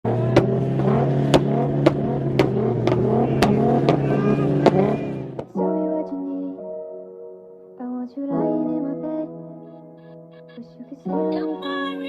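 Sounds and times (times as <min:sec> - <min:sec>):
sharp engine bangs: 0:00.0 - 0:05.6
car engine at steady revs: 0:00.1 - 0:05.5
music: 0:05.0 - 0:12.0.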